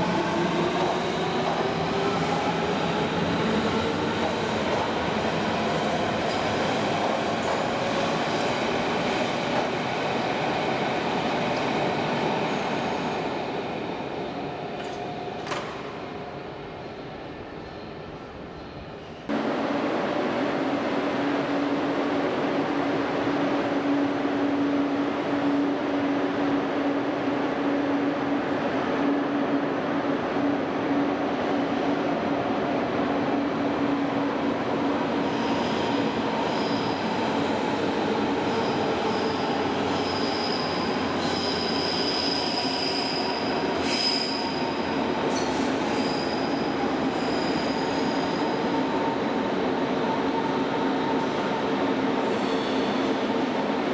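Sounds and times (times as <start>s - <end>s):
high wheel squeal: 38.7s - 44.7s, 45.3s - 48.6s.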